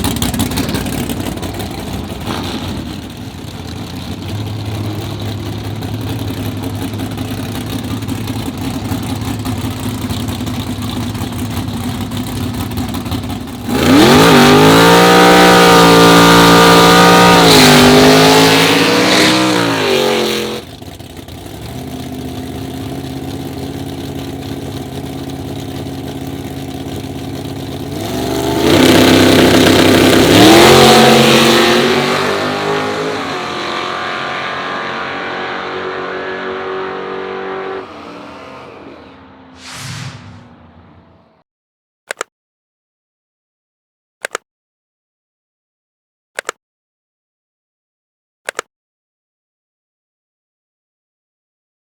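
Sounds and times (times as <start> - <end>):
car engine idling and revving: 0.0 - 39.7.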